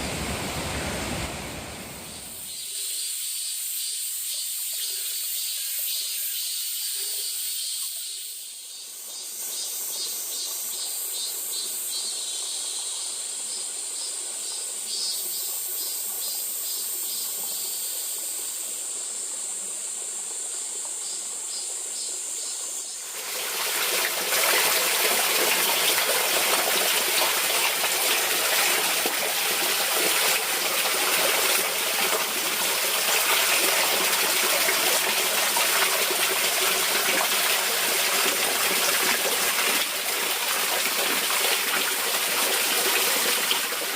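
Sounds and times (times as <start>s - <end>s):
stream rushing over rock: 0.0s - 2.4s, 23.0s - 43.9s.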